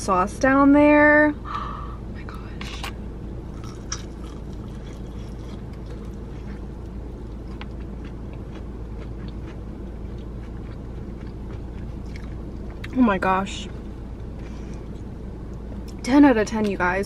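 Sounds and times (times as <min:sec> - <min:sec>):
low cabin hum: 0:00.0 - 0:17.0
wet crunchy chewing: 0:03.5 - 0:13.0.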